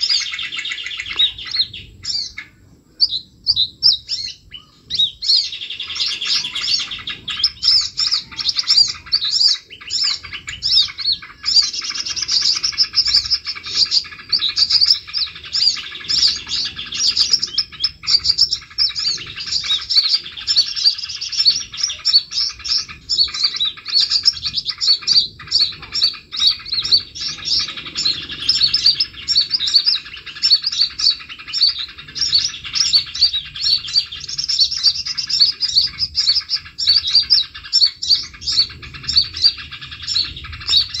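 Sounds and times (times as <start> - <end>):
songbirds chirping and twittering: 0.0 - 41.0.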